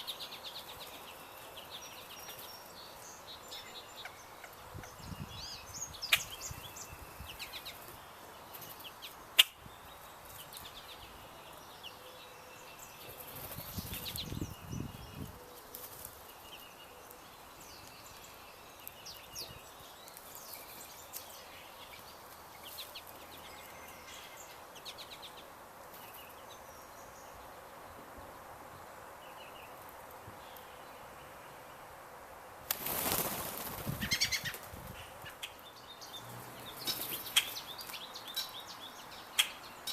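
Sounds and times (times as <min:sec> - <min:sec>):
small birds chirping: 0:00.0 - 0:32.0, 0:32.7 - 0:39.9
wing flapping: 0:32.7 - 0:34.9.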